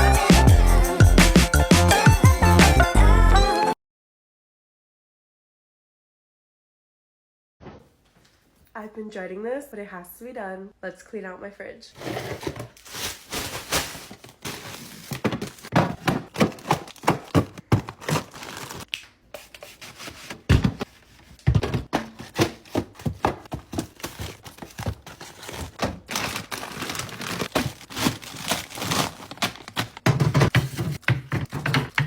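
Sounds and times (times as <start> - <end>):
plastic packaging crinkling: 12.0 - 21.4, 22.2 - 30.9
food containers clattering: 12.0 - 32.0.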